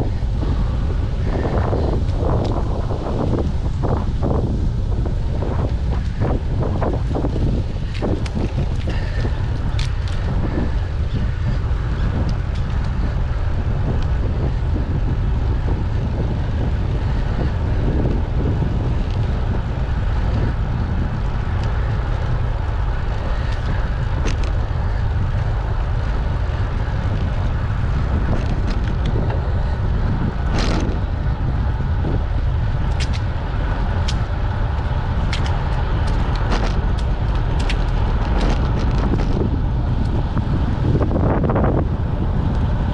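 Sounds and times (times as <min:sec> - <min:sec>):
road and tyre noise: 0:00.0 - 0:42.9
wind rushing over microphone: 0:00.0 - 0:42.9
sharp clicks and rattles: 0:32.8 - 0:33.3, 0:33.9 - 0:40.2.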